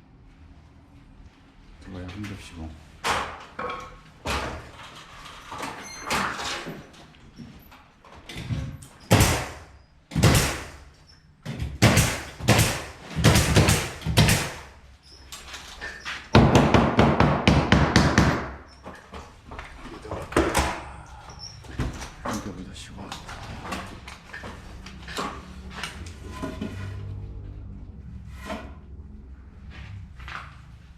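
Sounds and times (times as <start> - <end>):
rapid hammer strikes: 9.1 - 10.8, 11.8 - 14.7, 16.3 - 18.6
scraping strokes: 25.5 - 27.4.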